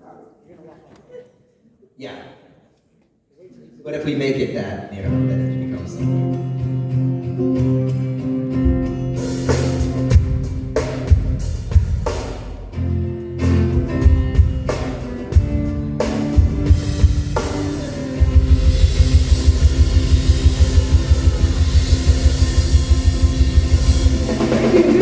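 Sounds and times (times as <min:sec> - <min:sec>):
live band playing: 0:05.1 - 0:25.0
sustained guitar and bass chords: 0:05.1 - 0:25.0
drum kit hits and cymbal crashes: 0:08.7 - 0:12.7, 0:13.7 - 0:25.0.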